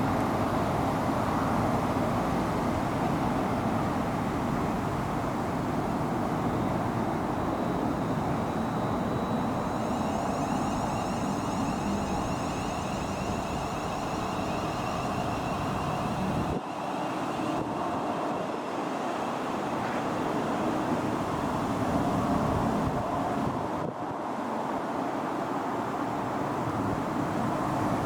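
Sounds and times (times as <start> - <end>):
faint wavering high whine: 0.0 - 28.0
diesel train rumble: 6.0 - 23.4.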